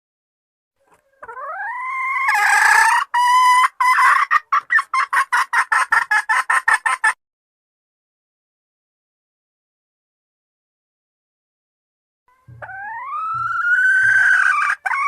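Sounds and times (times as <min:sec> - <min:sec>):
hen calling and clucking: 0:00.8 - 0:07.2, 0:12.3 - 0:15.0.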